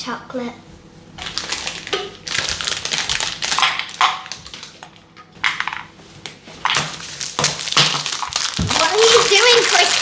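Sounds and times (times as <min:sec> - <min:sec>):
chocolate packaging crinkling: 0:01.2 - 0:05.0, 0:06.7 - 0:10.0.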